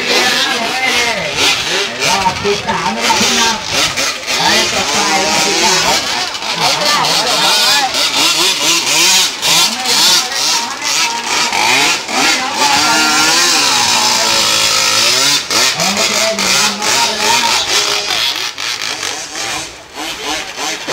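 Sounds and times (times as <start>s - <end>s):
model boat engine raspy hiss: 3.0s - 20.9s.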